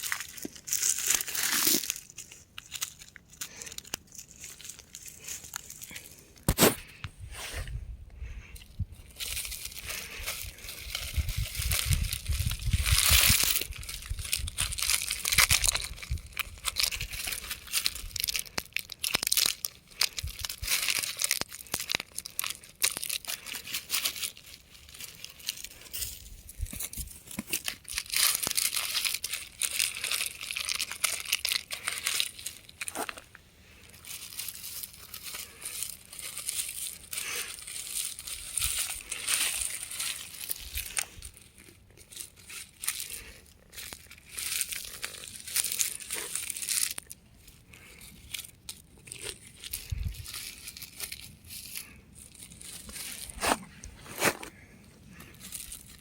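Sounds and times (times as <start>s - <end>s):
rock crumbling and crunching: 9.2s - 33.4s, 52.6s - 56.0s.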